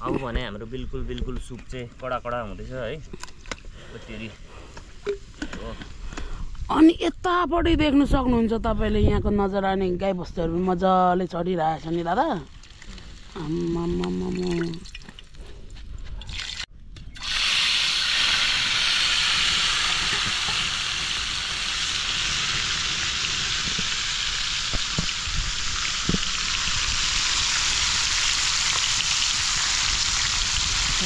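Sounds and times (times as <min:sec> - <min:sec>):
food sizzling in a pan: 0:17.2 - 0:31.0.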